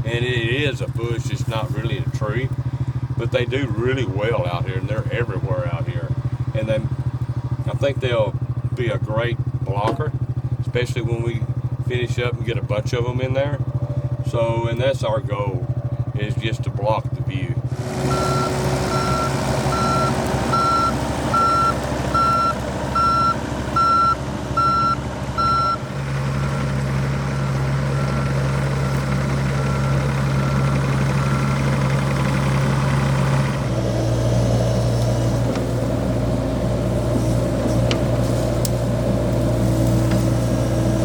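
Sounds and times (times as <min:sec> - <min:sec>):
excavator diesel engine running: 0:00.0 - 0:41.0
warning alarm beeping: 0:18.0 - 0:32.6.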